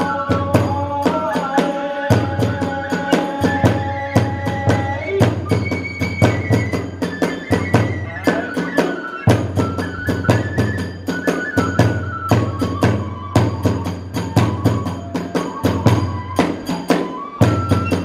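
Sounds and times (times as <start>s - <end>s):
bamboo flute long notes: 0.0s - 18.0s
large drum strokes: 0.0s - 18.0s
hand cymbals clashing: 13.6s - 18.0s.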